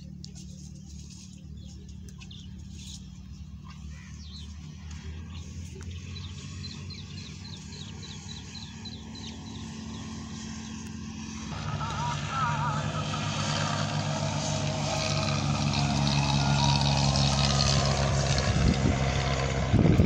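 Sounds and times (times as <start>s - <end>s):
small birds chirping: 0.0s - 17.7s
steady low hum: 0.0s - 20.0s.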